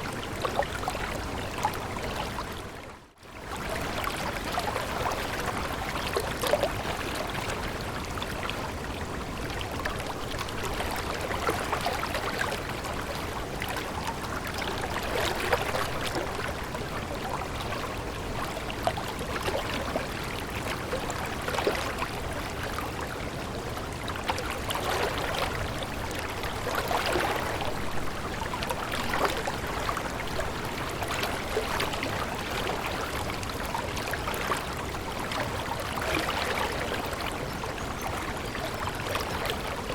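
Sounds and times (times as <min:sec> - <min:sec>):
stream water flowing: 0:00.0 - 0:39.9
water splashes: 0:09.4 - 0:39.9.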